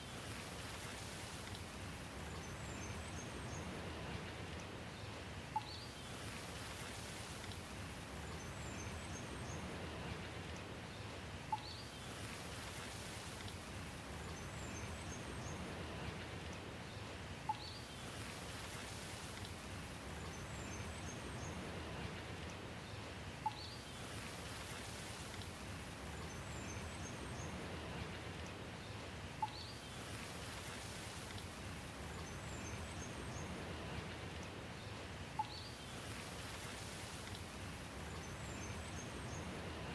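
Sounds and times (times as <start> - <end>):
steady rain: 0.0 - 39.9
faint high bird chirps: 35.4 - 36.0.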